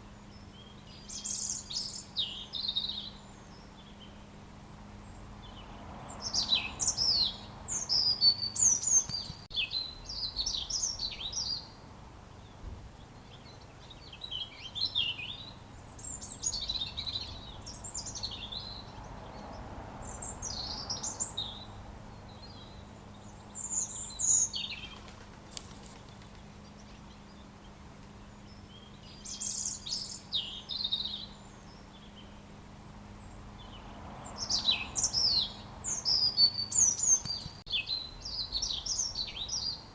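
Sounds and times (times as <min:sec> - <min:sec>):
robin singing: 0:00.0 - 0:11.8, 0:12.4 - 0:39.9.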